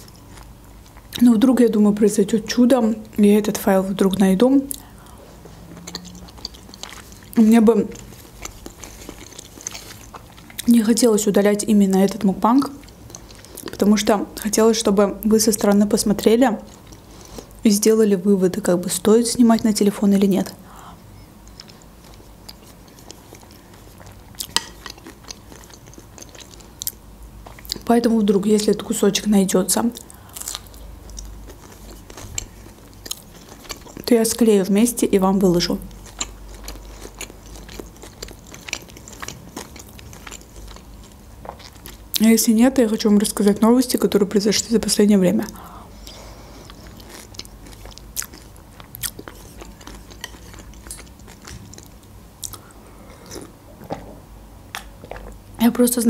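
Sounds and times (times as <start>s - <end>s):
chewing soup with croutons: 0.0s - 1.2s, 4.6s - 14.5s, 15.6s - 17.6s, 21.4s - 27.9s, 30.0s - 34.4s, 35.9s - 42.2s, 45.4s - 54.1s, 54.8s - 55.4s.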